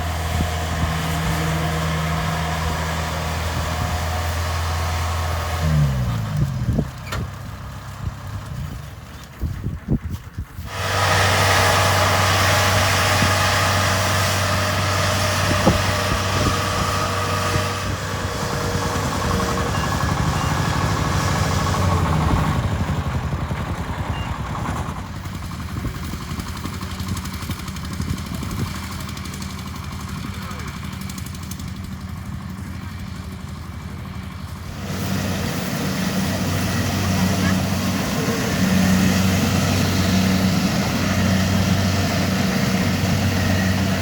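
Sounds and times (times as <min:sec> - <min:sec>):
combine harvester diesel engine: 0:00.0 - 0:44.0.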